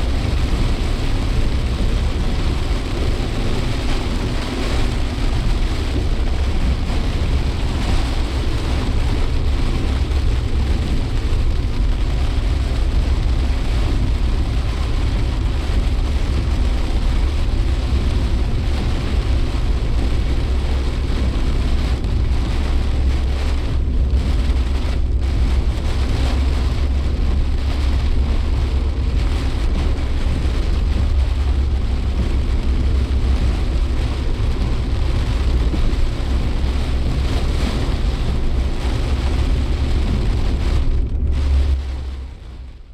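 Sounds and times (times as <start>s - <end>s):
car engine and road rumble: 0.0s - 42.9s.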